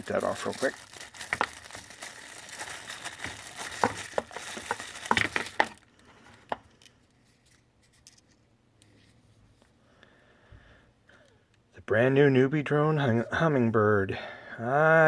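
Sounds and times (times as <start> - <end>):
plastic bag crinkling and tearing: 0.0 - 6.0.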